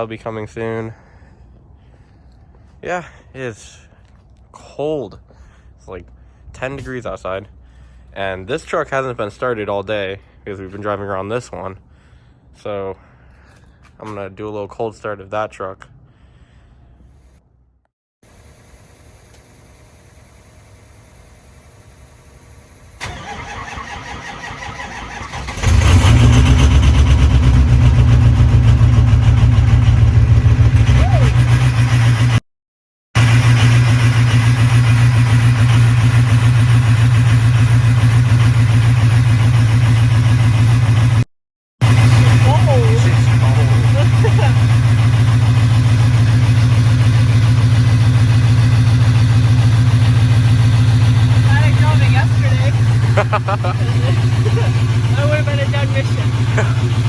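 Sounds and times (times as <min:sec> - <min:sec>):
truck engine idling: 0:18.3 - 0:32.3, 0:33.2 - 0:41.2, 0:41.8 - 0:57.0
starter motor cranking: 0:23.0 - 0:27.3.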